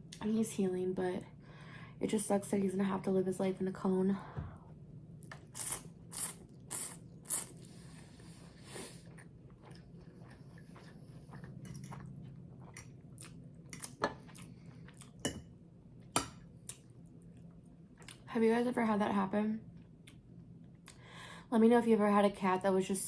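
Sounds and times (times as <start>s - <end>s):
low steady hum: 0.0s - 23.0s
chewing crunchy bread: 6.4s - 15.2s, 16.6s - 18.3s.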